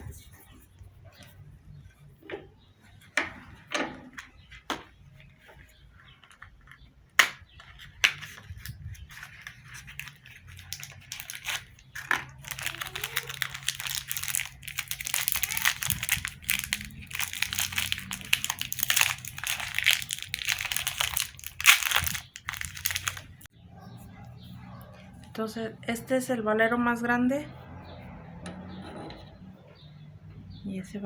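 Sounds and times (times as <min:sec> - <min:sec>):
packaging crinkling and tearing: 0:07.6 - 0:23.5.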